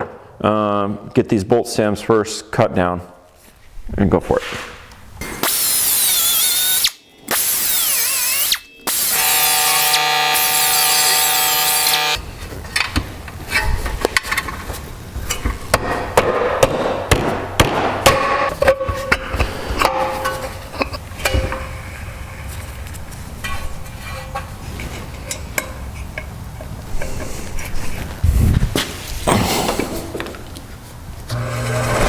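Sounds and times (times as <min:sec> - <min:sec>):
cutoff tool whining through steel: 0:05.2 - 0:12.2, 0:31.3 - 0:32.0.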